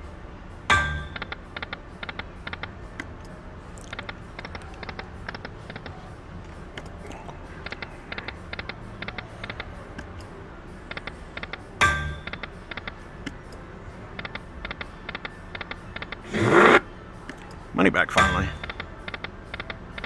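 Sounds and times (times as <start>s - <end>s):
hum of casino machines: 0.0s - 20.0s
slot machine spin clicks: 14.2s - 19.8s.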